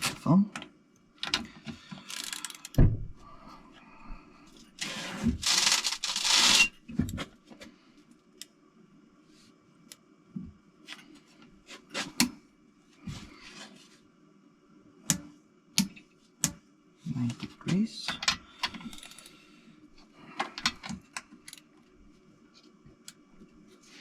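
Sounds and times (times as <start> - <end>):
thump: 2.8 - 3.1.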